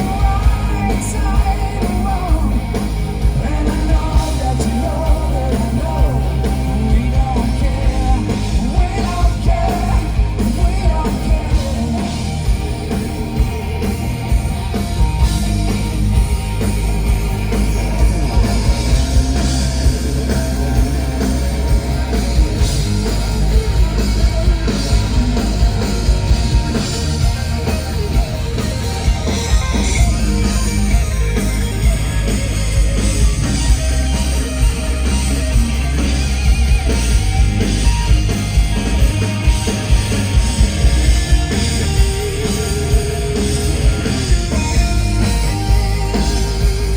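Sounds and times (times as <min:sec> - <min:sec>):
person singing: 0:00.0 - 0:02.8, 0:03.4 - 0:12.4
live hard rock band: 0:00.0 - 0:46.9.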